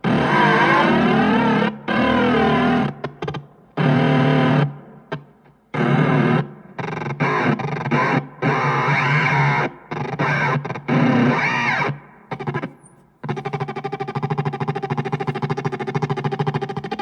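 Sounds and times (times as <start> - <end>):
harsh distorted electronic noise: 5.8 - 17.0.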